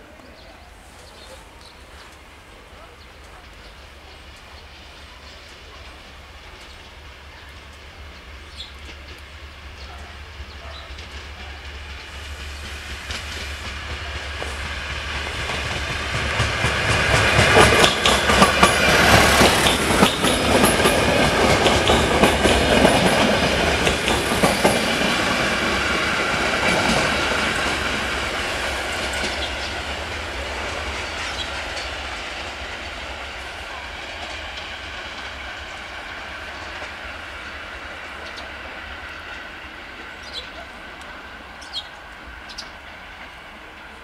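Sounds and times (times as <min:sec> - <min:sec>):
diesel train engine drone: 0:00.0 - 0:44.0
wheels clicking over rail joints: 0:07.6 - 0:37.2.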